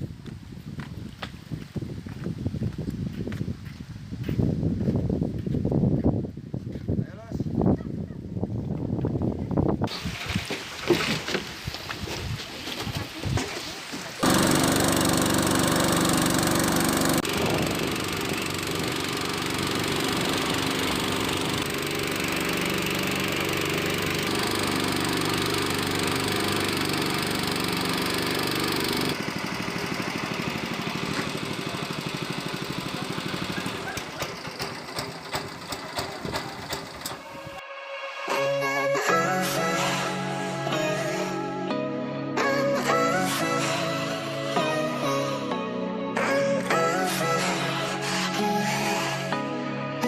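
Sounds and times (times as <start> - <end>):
small engine running: 14.2 - 37.6.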